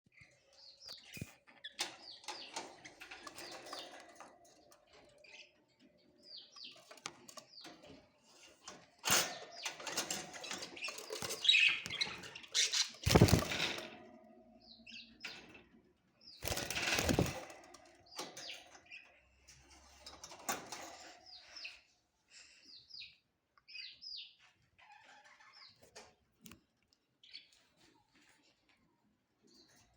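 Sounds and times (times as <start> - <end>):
wings fluttering: 10.0 - 14.0, 16.4 - 17.8.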